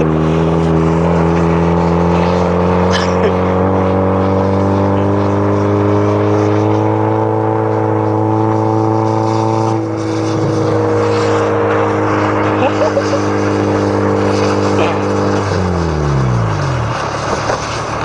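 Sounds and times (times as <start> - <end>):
car engine at high revs: 0.0 - 18.0
wind hiss: 8.6 - 18.0.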